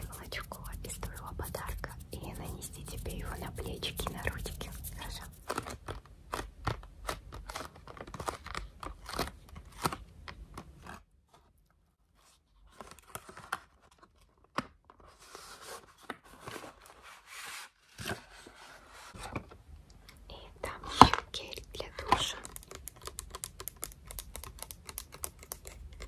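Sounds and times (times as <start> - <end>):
soft rubbing hiss: 0.0 - 5.5
crisp hand clicks and crackles: 21.0 - 26.0.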